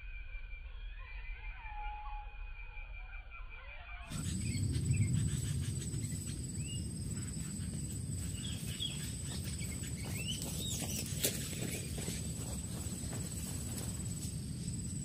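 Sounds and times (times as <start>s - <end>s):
insect high-pitched drone: 0.0s - 15.0s
low rumbling noise: 4.1s - 15.0s.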